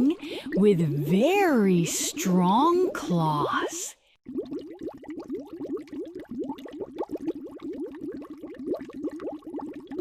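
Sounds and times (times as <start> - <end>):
underwater bubbles: 4.2 - 10.0.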